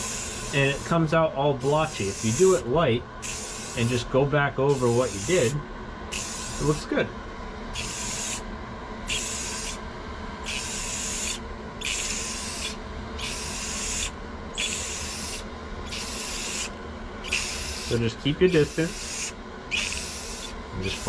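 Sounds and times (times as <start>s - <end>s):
spray gun hissing bursts: 0.0s - 1.0s, 1.6s - 2.6s, 3.2s - 4.0s, 4.7s - 6.8s.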